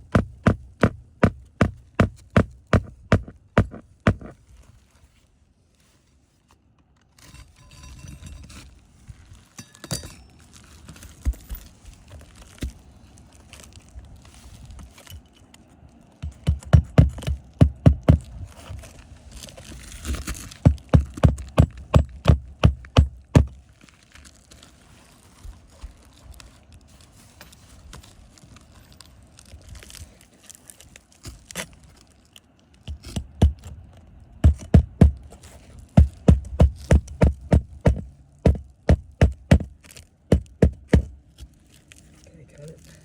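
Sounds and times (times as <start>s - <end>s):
dull thumps: 0.0s - 4.4s, 16.2s - 18.8s, 20.1s - 23.6s, 34.4s - 41.2s.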